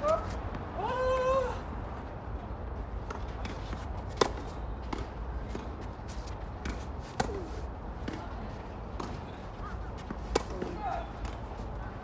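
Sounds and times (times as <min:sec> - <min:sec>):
tennis ball bouncing: 0:03.0 - 0:05.9
shuffling footsteps on court: 0:03.0 - 0:12.0.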